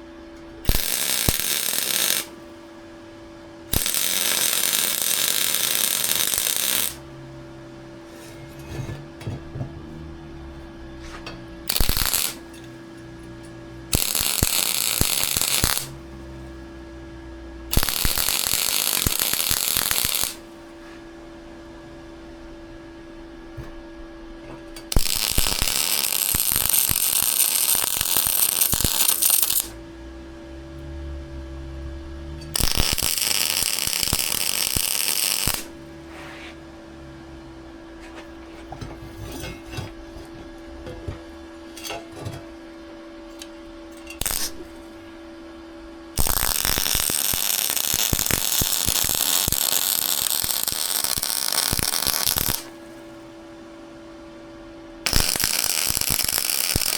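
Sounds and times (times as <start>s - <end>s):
steady low hum: 0.0s - 56.6s
welding arc crackling: 0.6s - 2.4s, 3.7s - 7.1s, 11.7s - 12.7s, 13.9s - 16.3s, 17.7s - 20.5s, 24.9s - 29.8s, 32.4s - 35.8s, 44.1s - 45.0s, 46.1s - 53.0s, 55.1s - 56.9s.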